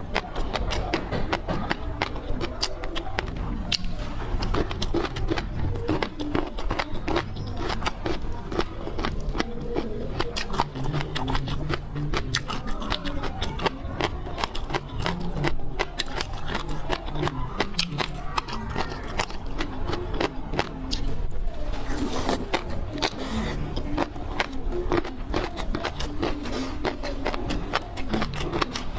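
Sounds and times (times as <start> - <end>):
wet clicks and crackles: 0.0 - 21.3
low mouth noises: 0.0 - 28.9
seafood being chewed: 0.0 - 28.9.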